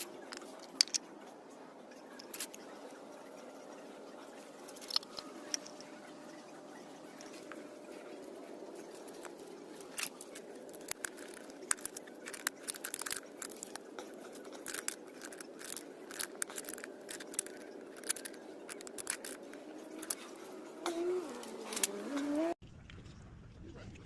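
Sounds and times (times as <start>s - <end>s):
clicks and scrapes of hand work: 0.0s - 1.1s, 4.6s - 6.0s, 7.2s - 22.5s
steady low hum: 0.0s - 22.6s.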